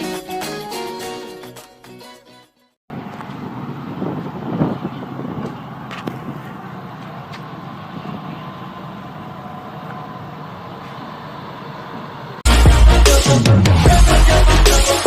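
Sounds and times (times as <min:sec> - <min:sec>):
road noise: 0:02.9 - 0:14.6.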